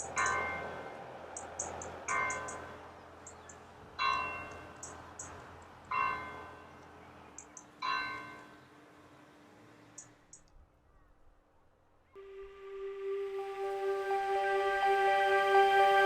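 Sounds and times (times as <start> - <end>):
church bell tolling: 0.2 - 0.8.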